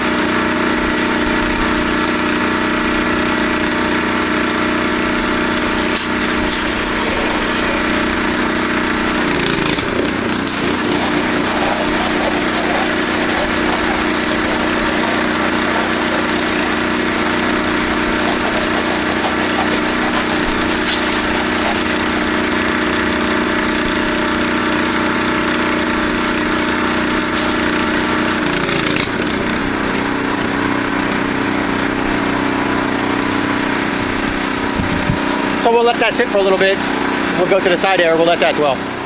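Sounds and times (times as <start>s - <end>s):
pressure washer engine running: 0.0s - 39.0s
broad hiss: 10.5s - 16.8s.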